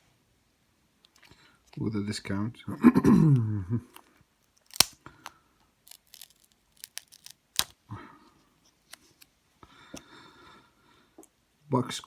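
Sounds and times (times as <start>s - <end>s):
packaging clicks: 4.5s - 5.0s
packaging rustling and crinkling: 5.8s - 7.8s.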